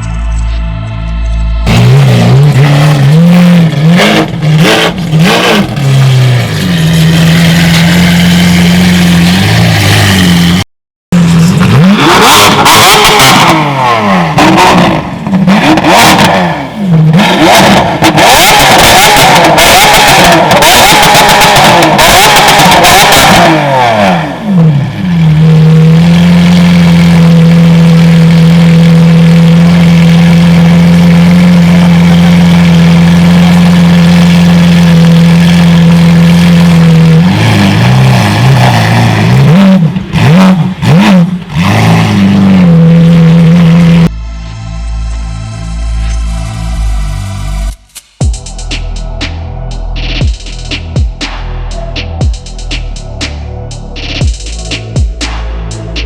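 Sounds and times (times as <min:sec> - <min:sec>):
car engine idling and revving: 0:00.0 - 0:56.0
sharp exhaust crackles: 0:11.2 - 0:56.0.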